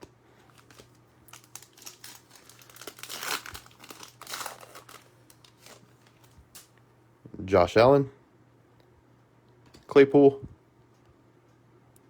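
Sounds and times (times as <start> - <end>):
foil wrapper crinkling and tearing: 0.4 - 6.7.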